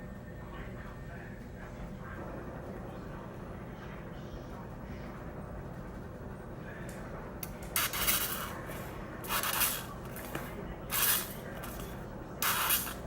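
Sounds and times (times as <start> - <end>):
short hissing spurts: 7.8 - 13.0.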